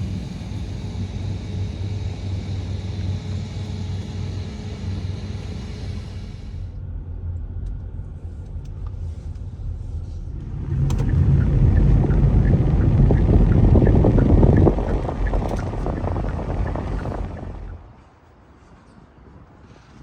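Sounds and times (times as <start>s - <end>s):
motor vehicle engine rumble: 7.5s - 18.6s.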